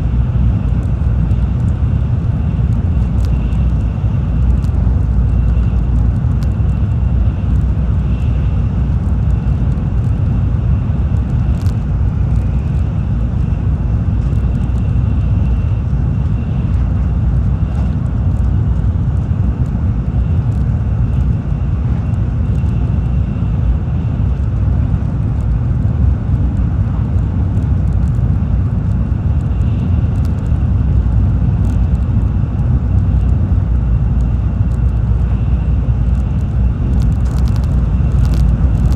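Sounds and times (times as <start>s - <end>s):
train cabin rumble: 0.0s - 38.9s
light ticks: 3.2s - 3.7s.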